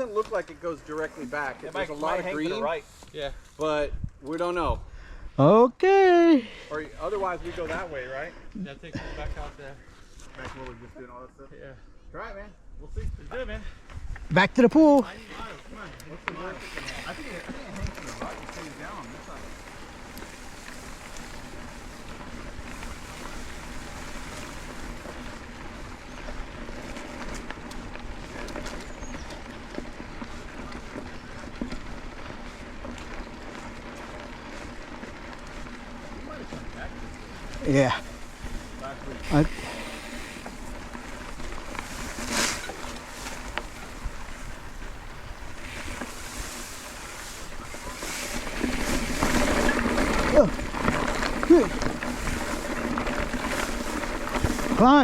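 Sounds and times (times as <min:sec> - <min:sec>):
tyre noise on dirt trail: 0:00.0 - 0:55.0
bike clicks and rattles: 0:13.8 - 0:55.0.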